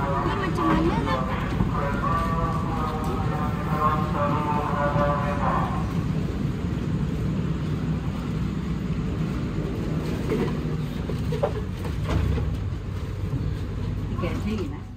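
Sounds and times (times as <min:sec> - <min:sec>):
stationary train rumble and hum: 0:00.0 - 0:14.9.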